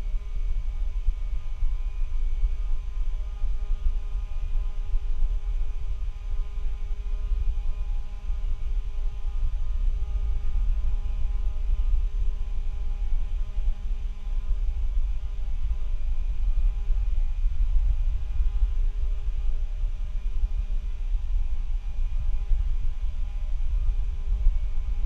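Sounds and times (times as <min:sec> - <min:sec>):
low microphone rumble: 0:00.0 - 0:25.0
steady multi-tone hum: 0:00.0 - 0:25.0.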